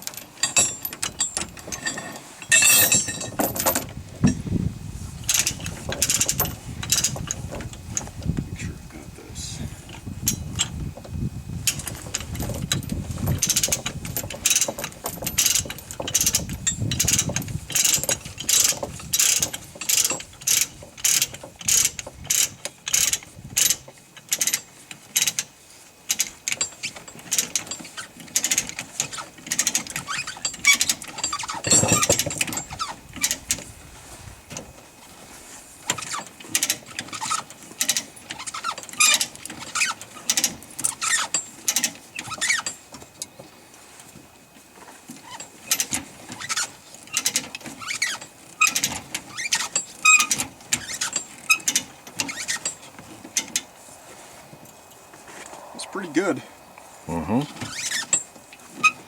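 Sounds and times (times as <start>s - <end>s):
ratchet chain binder clicking: 0.0s - 4.4s, 5.2s - 8.3s, 9.9s - 33.7s, 35.8s - 43.4s, 45.2s - 53.7s.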